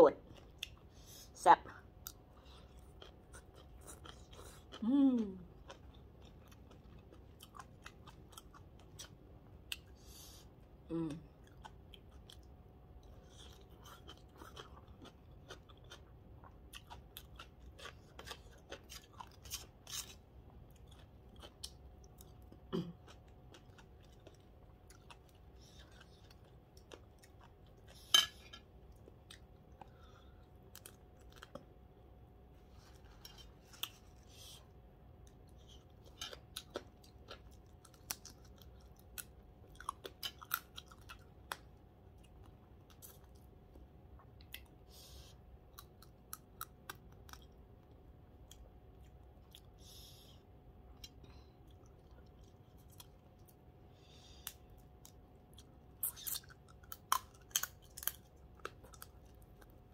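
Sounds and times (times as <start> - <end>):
wet chewing and crunching: 2.0 - 4.8, 5.4 - 10.0, 11.4 - 31.8, 35.1 - 44.8, 50.9 - 53.7, 54.4 - 59.9
person humming: 4.8 - 5.5, 10.9 - 11.3
person murmuring: 4.8 - 5.5, 10.9 - 11.3.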